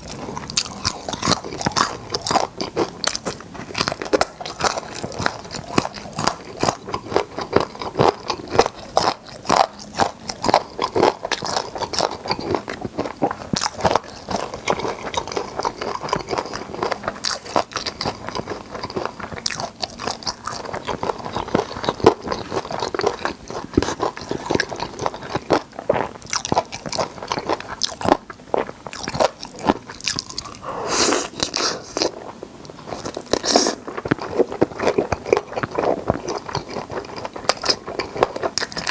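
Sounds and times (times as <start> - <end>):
wet chewing: 0.0 - 38.9.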